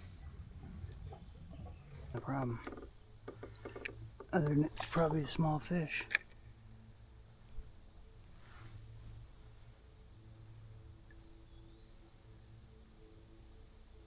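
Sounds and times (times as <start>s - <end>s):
insects chorus: 0.0s - 14.0s
small click: 3.4s - 5.4s, 6.0s - 6.4s.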